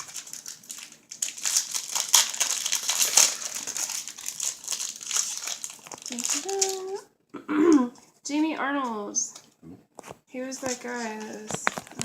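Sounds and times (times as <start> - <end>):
wrapper crinkling: 0.0 - 7.0, 10.6 - 12.0.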